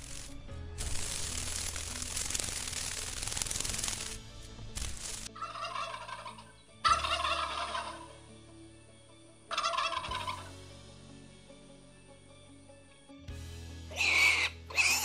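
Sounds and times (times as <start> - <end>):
turkey gobbling: 5.4 - 8.2, 9.5 - 10.5.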